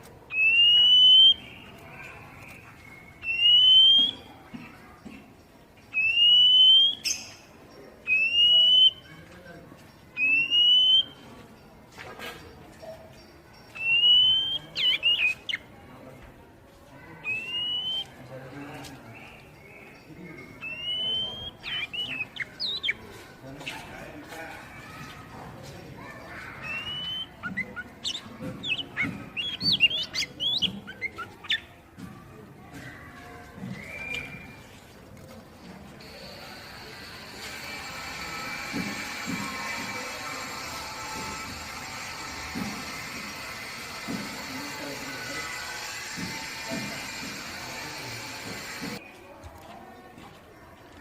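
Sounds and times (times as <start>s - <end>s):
bird whistled call: 0.3s - 1.6s, 2.8s - 4.4s, 5.9s - 7.4s, 8.1s - 9.1s, 10.2s - 11.2s, 13.8s - 15.6s, 17.3s - 18.2s, 20.4s - 23.0s, 26.6s - 31.7s, 33.8s - 34.6s.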